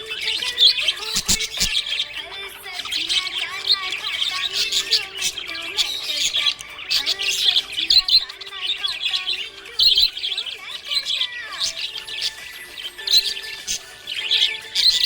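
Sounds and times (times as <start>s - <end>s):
budgerigars chirping and warbling: 0.0s - 15.0s
sharp clicks: 6.2s - 8.2s.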